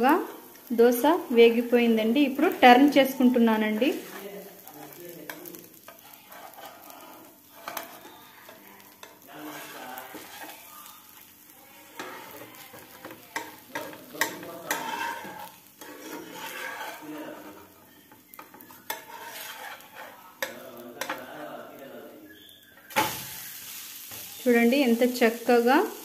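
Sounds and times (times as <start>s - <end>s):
pancake sizzling in oil: 0.0s - 26.0s
metal spatula scraping and tapping: 3.6s - 11.2s, 11.8s - 21.5s.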